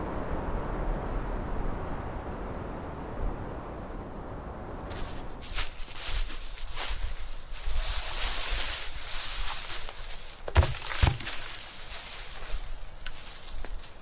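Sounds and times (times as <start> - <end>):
rustling: 4.9 - 14.0
dull thuds: 9.5 - 13.3.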